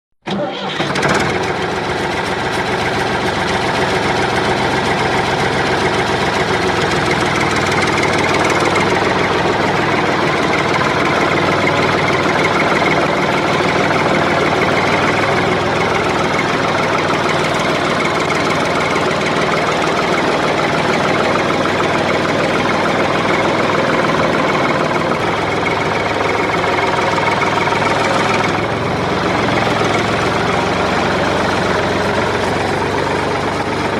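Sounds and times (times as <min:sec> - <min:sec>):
engine idling: 0:00.2 - 0:33.9.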